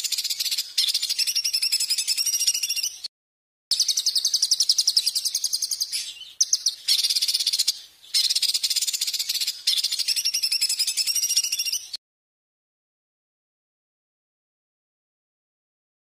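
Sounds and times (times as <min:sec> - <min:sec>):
songbird chattering trill: 0:00.0 - 0:03.1, 0:03.7 - 0:12.0.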